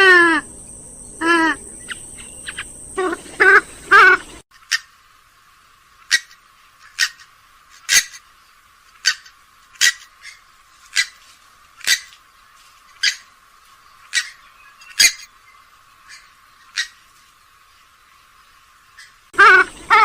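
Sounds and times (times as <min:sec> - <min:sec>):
swamphen short sharp calls: 0:00.0 - 0:04.9, 0:06.0 - 0:08.2, 0:09.0 - 0:11.2, 0:11.8 - 0:12.1, 0:14.0 - 0:15.3, 0:19.0 - 0:20.0.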